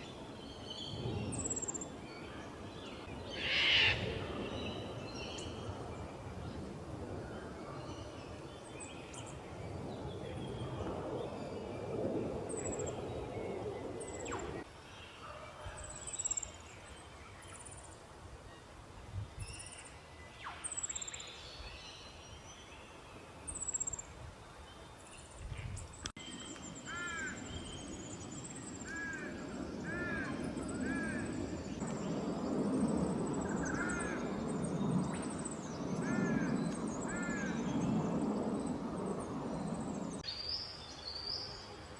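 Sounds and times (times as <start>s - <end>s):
bird arching calls: 3.4s - 4.0s.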